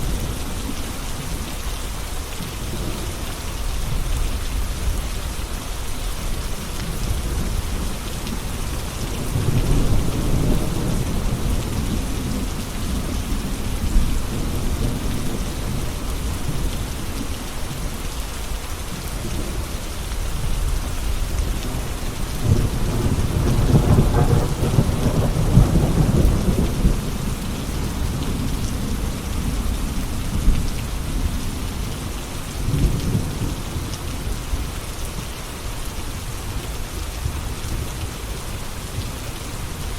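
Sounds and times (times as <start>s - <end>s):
steady rain falling: 0.0s - 39.9s
low rolling thunder: 6.8s - 17.9s, 20.2s - 34.7s.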